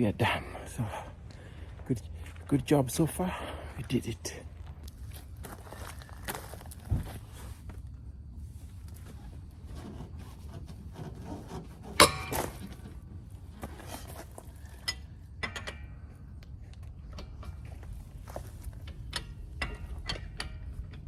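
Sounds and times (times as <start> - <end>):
tools knocking and clinking: 12.0 - 12.8, 14.6 - 16.1, 18.8 - 21.0.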